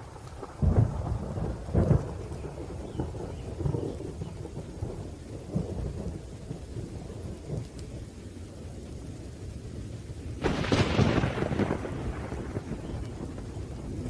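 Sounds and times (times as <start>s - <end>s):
low rumbling thunder: 0.0s - 14.0s
steady rain: 0.0s - 14.0s
loud crack of thunder: 0.4s - 6.2s, 10.4s - 14.0s.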